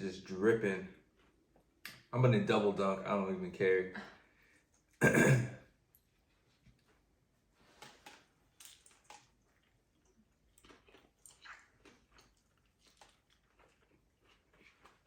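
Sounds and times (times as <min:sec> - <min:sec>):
mouth chewing sounds: 0:07.8 - 0:15.0.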